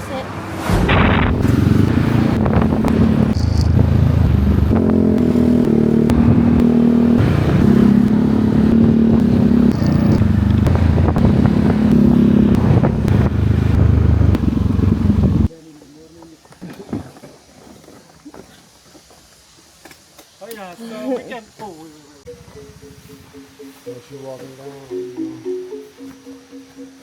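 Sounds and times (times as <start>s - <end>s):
motorbike engine running: 0.6s - 15.5s.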